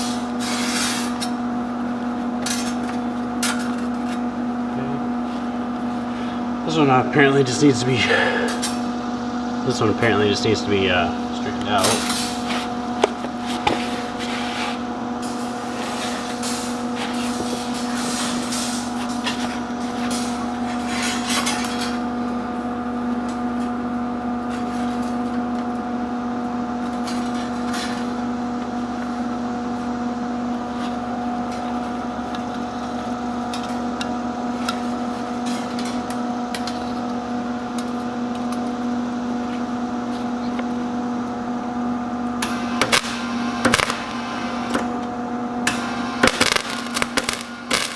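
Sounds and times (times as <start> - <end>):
electrical hum: 0.0 - 47.9.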